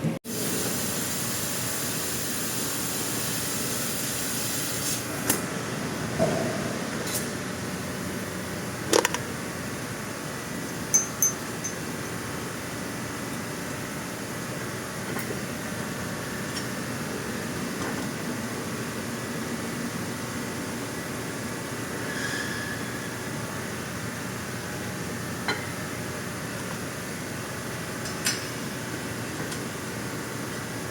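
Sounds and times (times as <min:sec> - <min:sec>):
sharp metallic clinks: 0:10.9 - 0:11.8.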